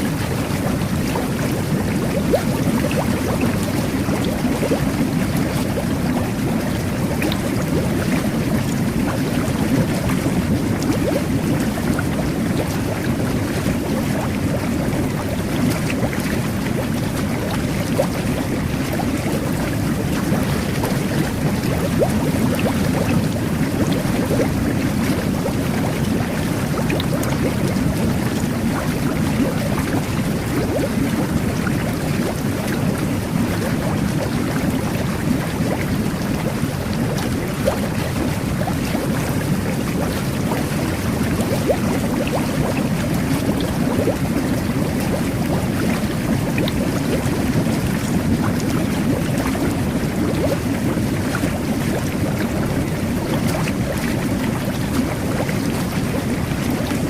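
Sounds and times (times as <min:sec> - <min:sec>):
jet bath water bubbling: 0:00.0 - 0:57.0.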